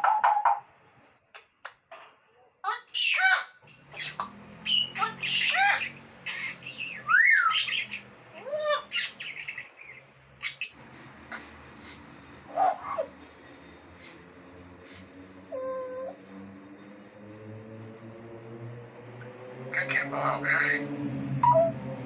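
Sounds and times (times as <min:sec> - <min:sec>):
parrot squawking and whistling: 0:02.9 - 0:10.8, 0:21.4 - 0:21.8.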